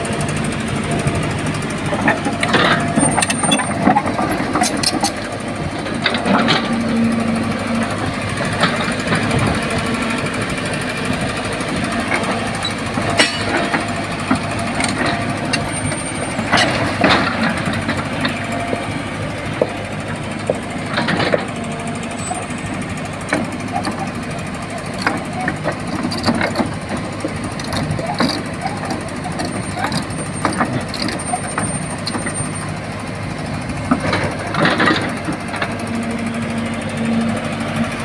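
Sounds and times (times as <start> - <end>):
excavator diesel engine running: 0.0 - 38.0
sharp metallic clanks and knocks: 1.9 - 7.0, 12.1 - 22.6, 25.0 - 32.7.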